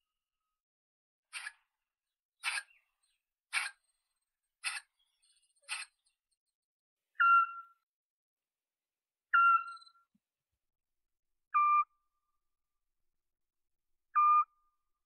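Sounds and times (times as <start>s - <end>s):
owl whistled toots: 9.4s - 10.0s.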